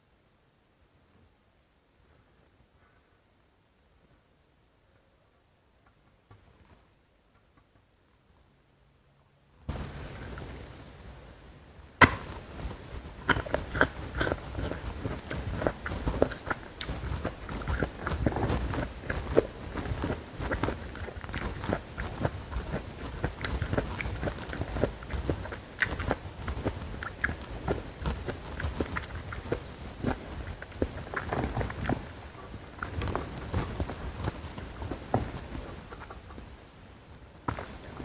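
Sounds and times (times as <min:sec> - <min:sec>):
crunchy bite: 0:12.0 - 0:12.5, 0:13.2 - 0:32.1
chewing crisp food: 0:12.0 - 0:36.4.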